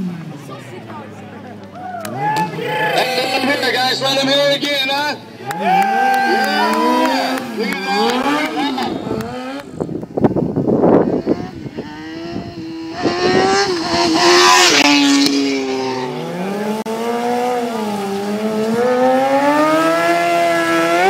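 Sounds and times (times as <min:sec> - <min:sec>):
motorcycle engine revving: 0:06.6 - 0:21.0.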